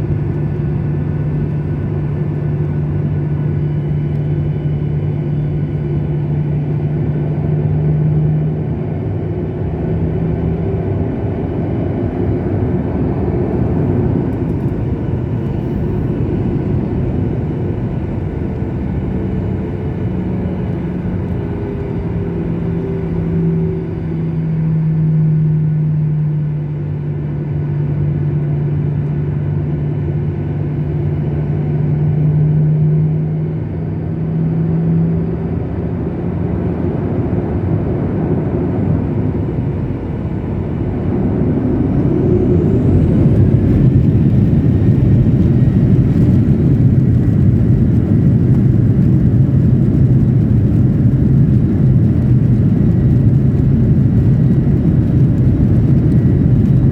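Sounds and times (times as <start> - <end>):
jet engine hum in cabin: 0.0 - 56.9
faint rising whine: 37.7 - 56.9.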